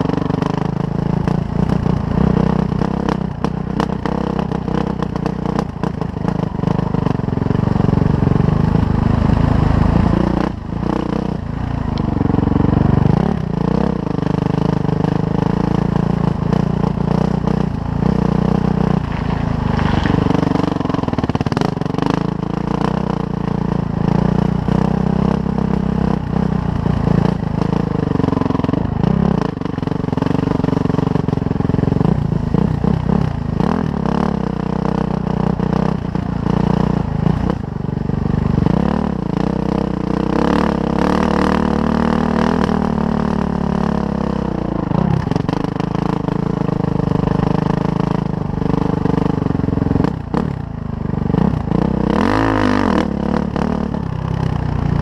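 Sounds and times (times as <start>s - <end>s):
dirt bike engine revving: 7.2s - 31.2s, 51.3s - 54.2s.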